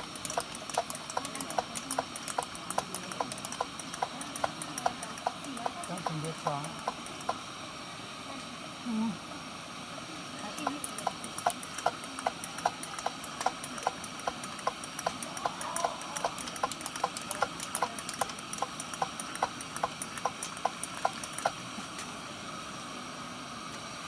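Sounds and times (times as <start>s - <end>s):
lantern hand pump clicks: 0.0s - 7.4s, 10.4s - 22.1s
lantern steady hiss: 0.0s - 24.0s.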